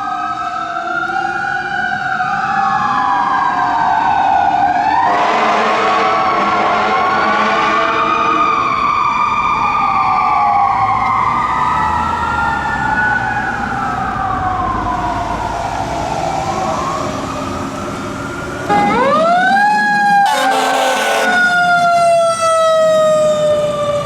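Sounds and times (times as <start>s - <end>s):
fire engine siren wailing: 0.0s - 24.0s
truck rumble: 5.3s - 24.0s.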